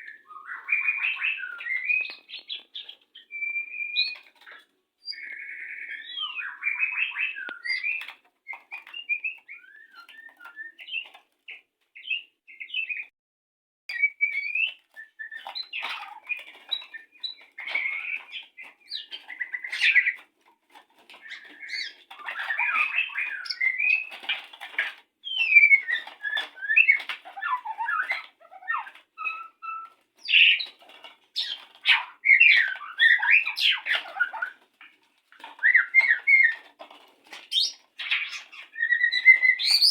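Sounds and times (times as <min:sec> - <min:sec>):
bird singing whistled phrases: 0:00.0 - 0:02.3, 0:03.2 - 0:04.2, 0:37.5 - 0:39.9.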